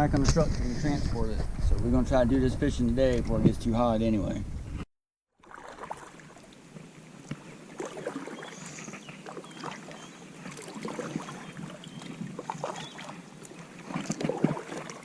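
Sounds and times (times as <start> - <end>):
paddle splashing in water: 5.4 - 15.0
paddle knocking against hull: 13.8 - 15.0.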